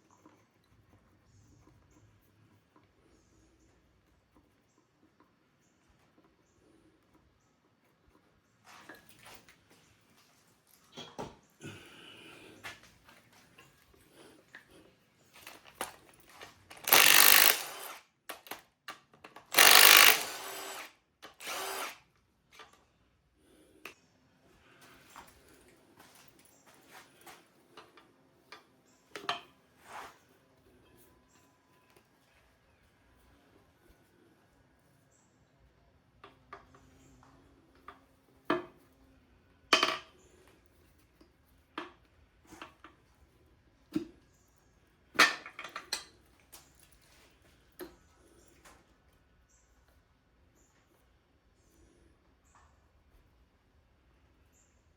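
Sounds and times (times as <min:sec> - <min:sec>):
metal parts clinking: 0:15.4 - 0:18.6
handheld power tool bursts: 0:16.3 - 0:18.6, 0:19.5 - 0:22.1.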